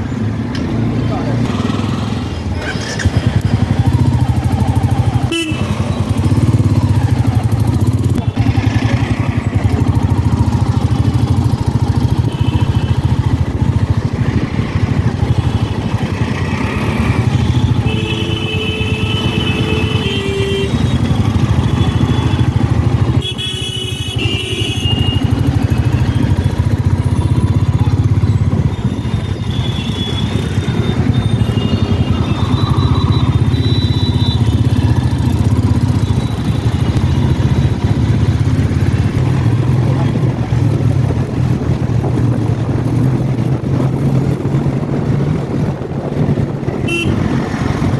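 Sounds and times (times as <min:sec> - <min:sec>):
motorcycle engine running: 0:00.8 - 0:47.9.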